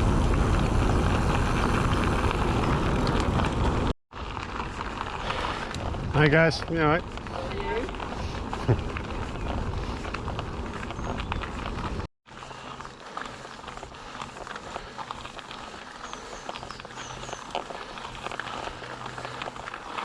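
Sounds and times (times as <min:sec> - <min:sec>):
wind rumble on microphone: 0:00.0 - 0:12.1.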